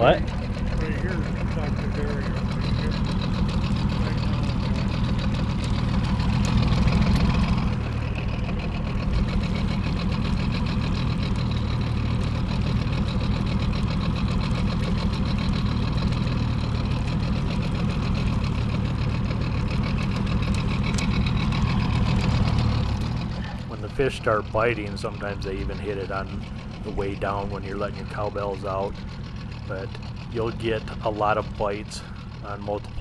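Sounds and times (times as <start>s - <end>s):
boat motor running: 0.0s - 33.0s.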